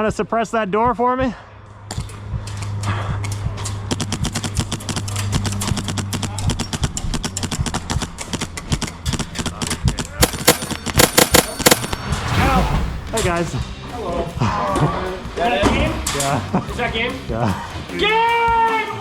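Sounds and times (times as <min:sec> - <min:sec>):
airsoft guns full-auto bursts: 0:03.9 - 0:12.1.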